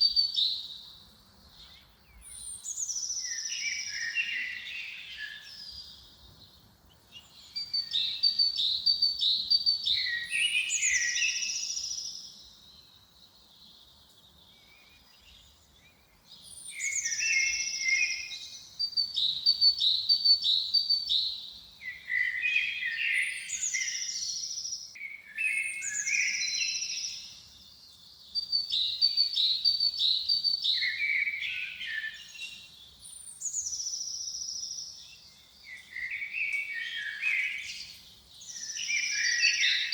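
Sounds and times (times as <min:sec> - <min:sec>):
bird chirping and trilling: 0:07.2 - 0:12.2, 0:35.7 - 0:39.9.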